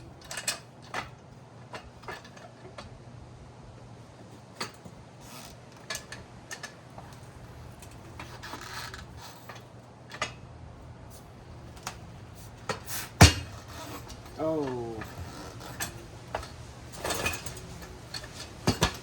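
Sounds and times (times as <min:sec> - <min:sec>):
tire changer clicks and knocks: 0:00.0 - 0:03.0, 0:04.2 - 0:10.5, 0:11.2 - 0:19.0
tire rubbing on rim: 0:04.2 - 0:10.3, 0:11.0 - 0:19.0.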